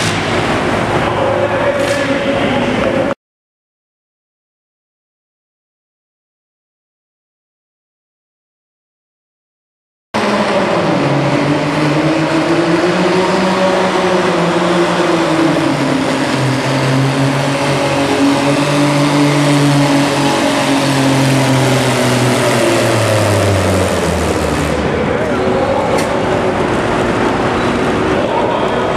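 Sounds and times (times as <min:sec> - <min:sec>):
tractor engine labouring: 0:10.2 - 0:28.9.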